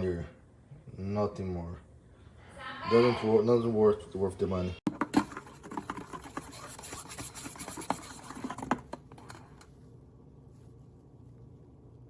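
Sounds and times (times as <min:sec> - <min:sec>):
scratching: 0:04.9 - 0:09.7.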